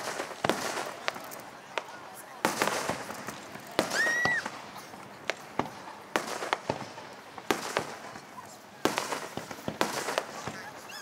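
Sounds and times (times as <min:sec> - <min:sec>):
fireworks bangs with echo: 0:00.0 - 0:11.0
firework whistle: 0:03.8 - 0:04.5.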